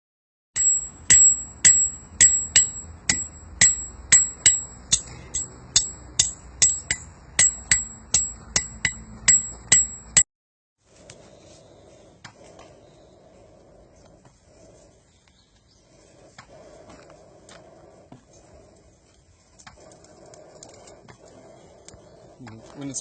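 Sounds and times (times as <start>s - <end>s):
hammer striking steel: 0.6s - 10.2s.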